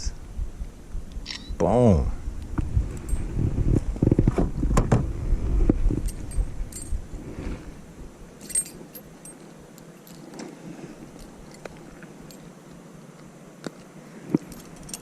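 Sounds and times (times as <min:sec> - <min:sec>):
low steady background noise: 0:00.0 - 0:15.0
handling clicks and jingles: 0:06.0 - 0:07.0, 0:08.4 - 0:12.6, 0:14.4 - 0:15.0.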